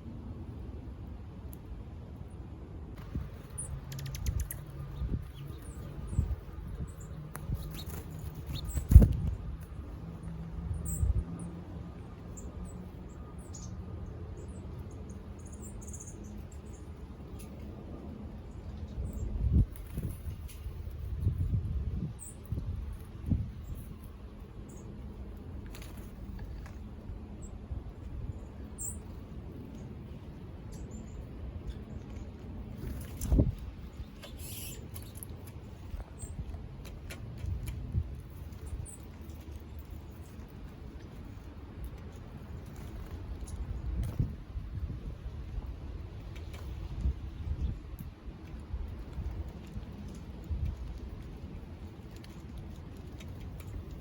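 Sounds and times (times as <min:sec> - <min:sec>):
faint high bird chirps: 0:33.9 - 0:35.2.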